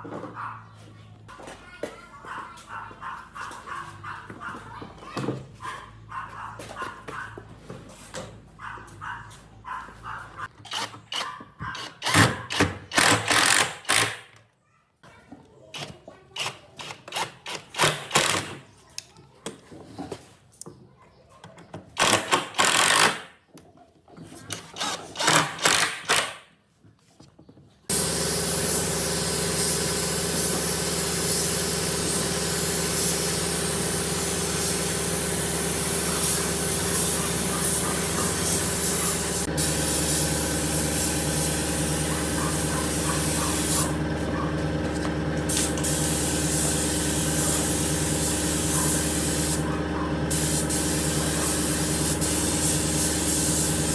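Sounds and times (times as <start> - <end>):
power tool running: 11.8 - 14.3, 22.0 - 23.2, 24.8 - 26.3, 27.9 - 53.9.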